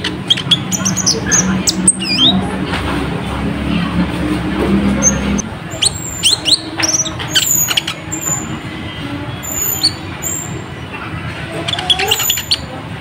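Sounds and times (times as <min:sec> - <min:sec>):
bird singing chirps: 0:00.0 - 0:02.5, 0:05.0 - 0:10.7, 0:11.6 - 0:12.7.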